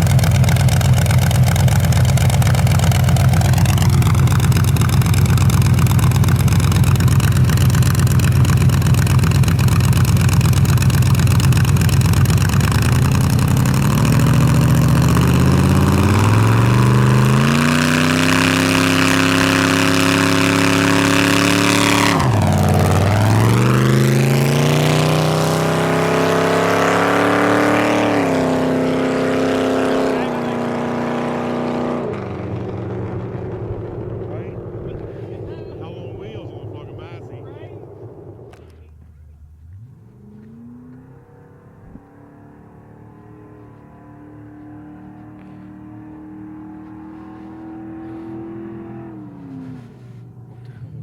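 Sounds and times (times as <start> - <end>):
truck engine revving hard: 0.0 - 38.6.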